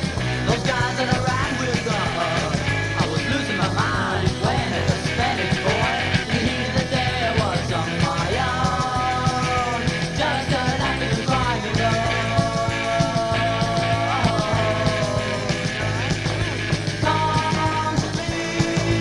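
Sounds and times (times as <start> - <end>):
rock music: 0.0 - 19.0
steady drum beat: 0.0 - 19.0.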